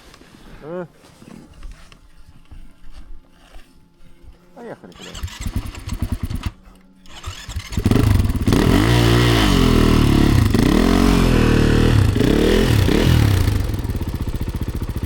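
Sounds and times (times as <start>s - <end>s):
dirt bike engine revving: 5.0s - 15.0s.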